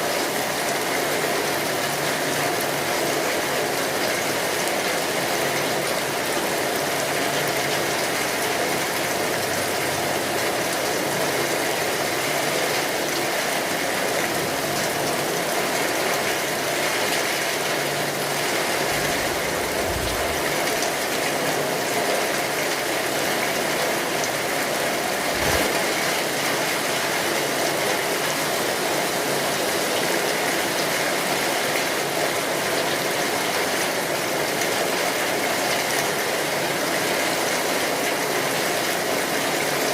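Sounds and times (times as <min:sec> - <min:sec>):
steady rainfall: 0:00.0 - 0:39.9
low thuds: 0:18.9 - 0:20.8.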